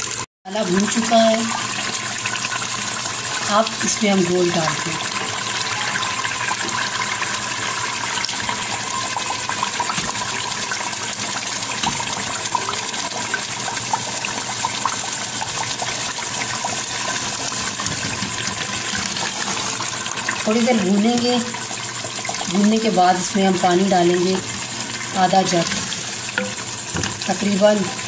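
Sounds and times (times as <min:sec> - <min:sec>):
meat sizzling in hot oil: 0:00.0 - 0:28.0
wooden spatula stirring: 0:16.9 - 0:20.1, 0:25.4 - 0:27.3.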